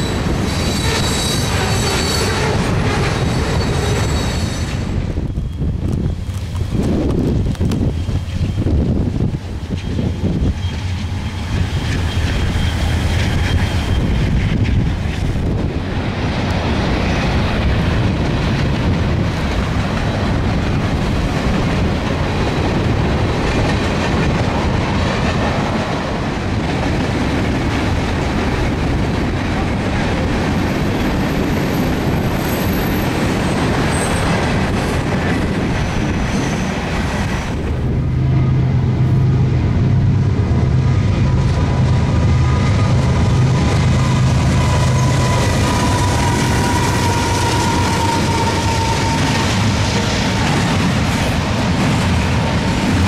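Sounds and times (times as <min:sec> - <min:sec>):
freight cars rumbling on rails: 0:00.0 - 0:53.0.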